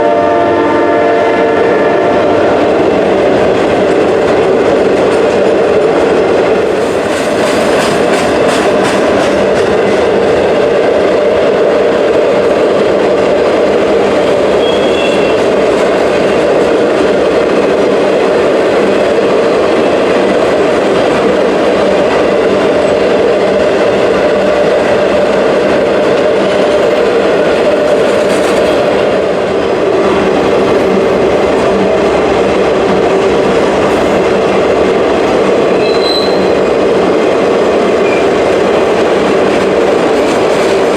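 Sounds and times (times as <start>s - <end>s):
train wheels rumbling on rail: 0.0s - 40.9s
high wheel squeal: 14.6s - 15.5s, 35.8s - 36.6s.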